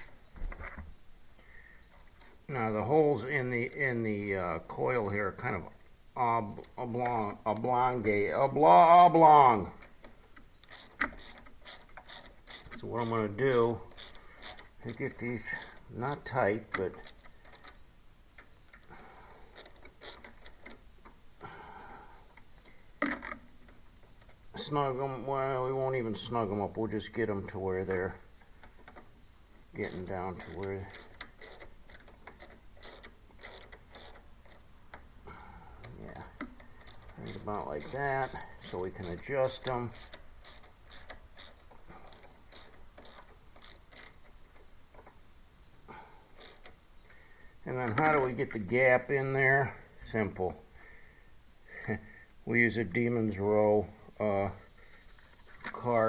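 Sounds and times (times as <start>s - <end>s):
ratchet wrench clicking: 10.6s - 14.7s, 29.8s - 34.2s, 36.4s - 44.3s, 46.4s - 46.8s
soft rasping: 29.7s - 45.2s
hand tool ticks and clicks: 35.8s - 45.2s.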